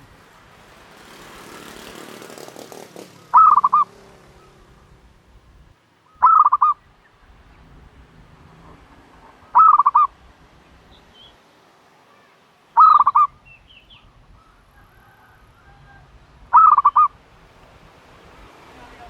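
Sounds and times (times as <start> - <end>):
dove calling: 3.2 - 5.0, 5.6 - 7.7, 8.7 - 10.2, 12.8 - 17.5.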